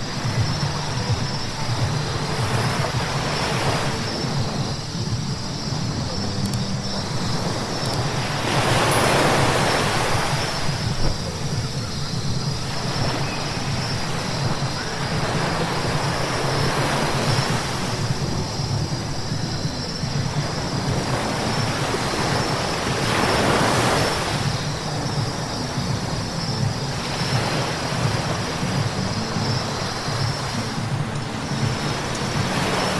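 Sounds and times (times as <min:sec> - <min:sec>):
engine and road hum: 0:00.0 - 0:23.0.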